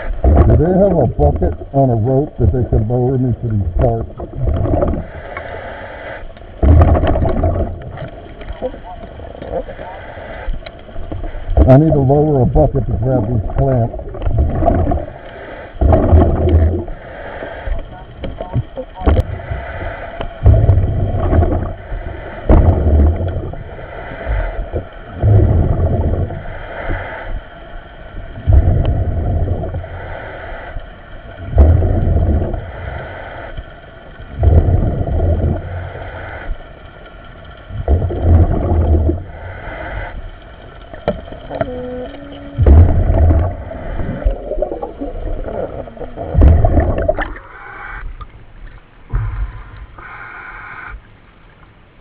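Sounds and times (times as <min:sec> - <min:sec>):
gurgling rush of exhaust bubbles: 0:00.0 - 0:05.3, 0:06.5 - 0:27.4, 0:28.1 - 0:33.6, 0:34.2 - 0:36.6, 0:37.6 - 0:47.6
diver breathing in helmet: 0:04.9 - 0:06.4, 0:14.7 - 0:17.9, 0:19.2 - 0:36.8, 0:38.0 - 0:40.5, 0:49.1 - 0:51.0.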